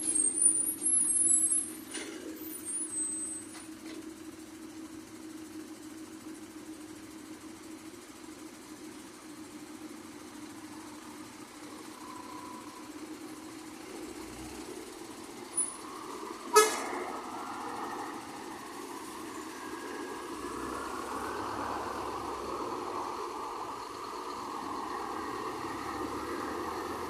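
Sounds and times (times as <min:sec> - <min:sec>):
bus engine running: 0:00.0 - 0:27.0
bus horn toot: 0:16.5 - 0:17.0.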